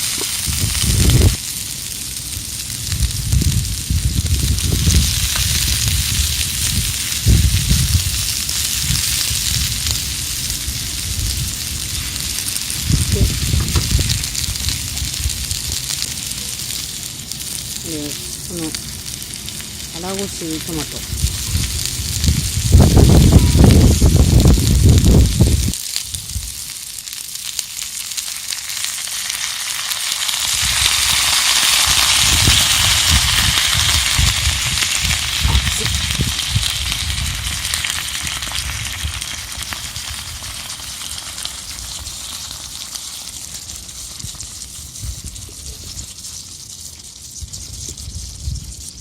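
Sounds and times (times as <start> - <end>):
food sizzling in a pan: 0.0 - 49.0
small crackles: 0.0 - 49.0
low rumbling bumps: 2.9 - 25.8.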